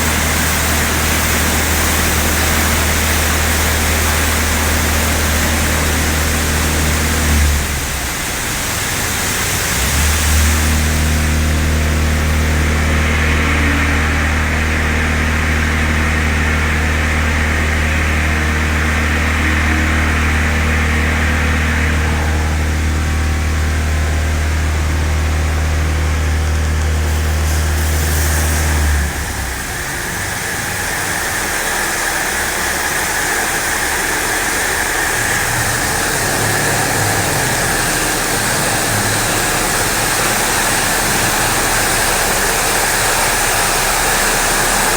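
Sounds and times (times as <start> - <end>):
water spray hissing: 0.0 - 14.0, 26.5 - 44.9
car wash motor hum: 0.0 - 44.9.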